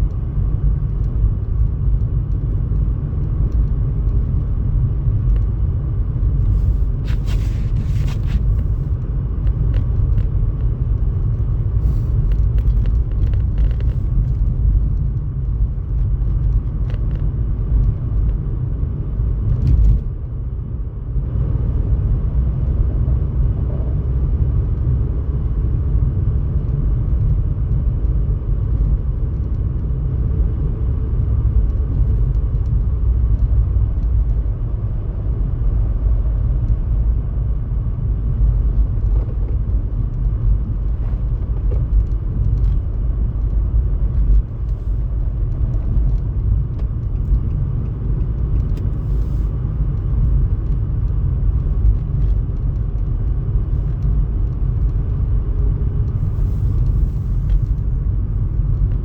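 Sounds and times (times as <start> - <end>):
steady low rumble: 0.0 - 59.0.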